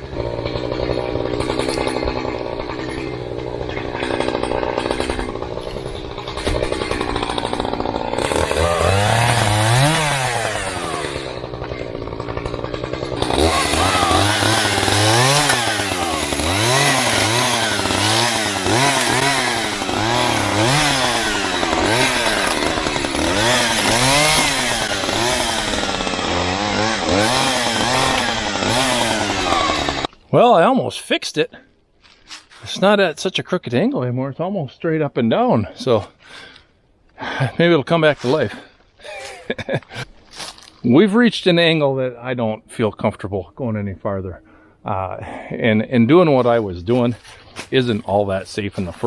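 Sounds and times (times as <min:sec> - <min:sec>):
chainsaw revving: 0:00.0 - 0:30.2.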